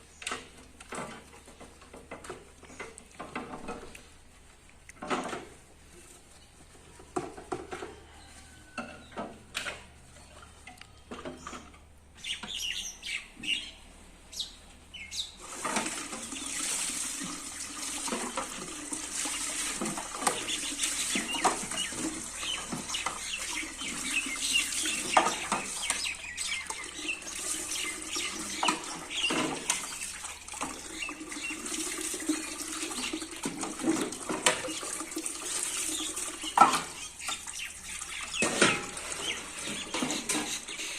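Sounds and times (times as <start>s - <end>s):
clattering of things being washed: 0.0s - 12.9s, 14.9s - 40.9s
tap running with splashing: 7.0s - 8.1s, 15.4s - 40.9s.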